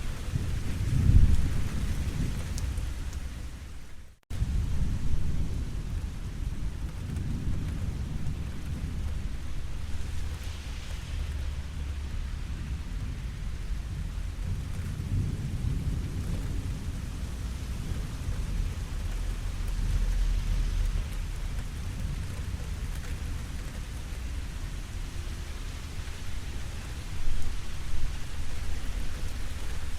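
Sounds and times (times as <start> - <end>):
low thunder rumble: 0.0 - 29.9
steady rain falling: 0.0 - 29.9.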